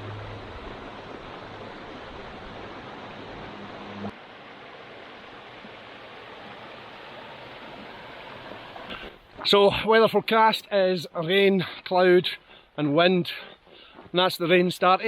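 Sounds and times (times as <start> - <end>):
low hum: 0.0 - 9.0
rushing water: 0.0 - 13.2.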